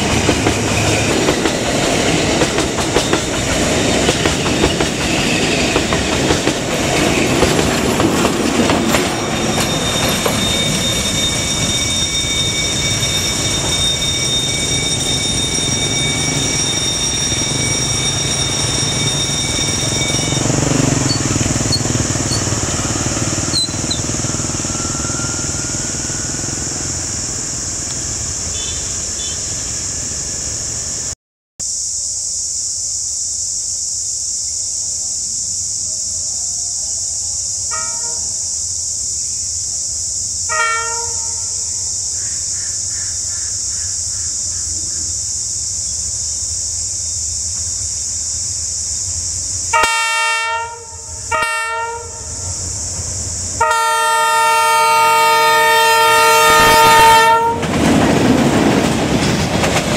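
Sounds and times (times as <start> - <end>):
freight train rumbling: 0.0 - 31.2, 35.9 - 59.9
high wheel squeal: 8.4 - 30.4, 52.2 - 58.3
locomotive horn toot: 28.5 - 29.4, 40.5 - 41.5, 49.7 - 52.4, 53.6 - 57.8.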